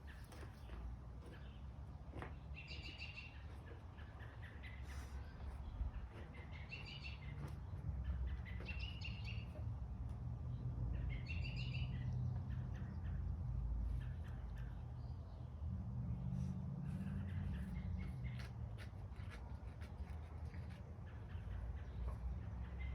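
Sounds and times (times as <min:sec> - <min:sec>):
songbird chirping: 0:00.0 - 0:15.7.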